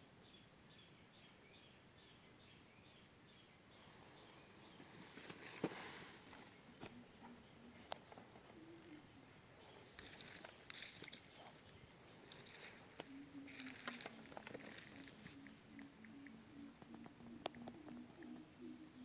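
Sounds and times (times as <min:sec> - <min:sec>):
high-pitched insect trill: 0:00.0 - 0:19.0
faint low pulsing notes: 0:03.8 - 0:19.0
faint clicks: 0:04.8 - 0:09.0, 0:12.2 - 0:18.7.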